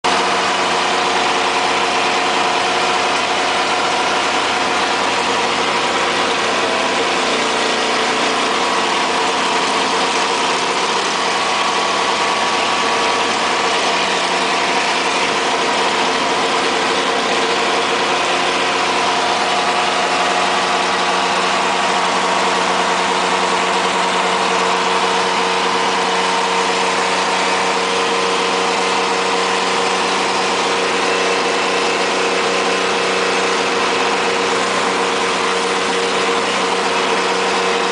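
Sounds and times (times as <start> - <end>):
race car engine cruising: 0.0 - 37.9.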